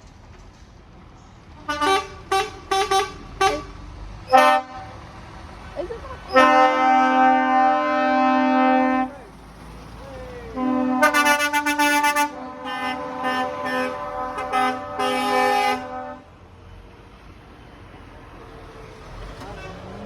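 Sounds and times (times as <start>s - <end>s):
lorry air horn blasts: 6.3s - 9.1s, 10.6s - 16.3s.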